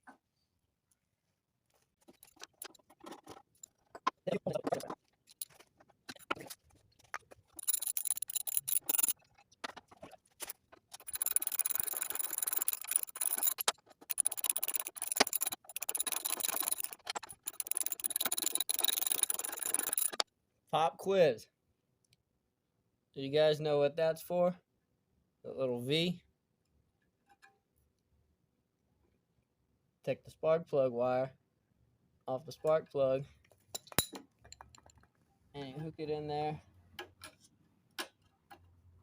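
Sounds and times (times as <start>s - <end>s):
socket ratchet clicking: 7.6s - 9.2s, 11.0s - 20.2s.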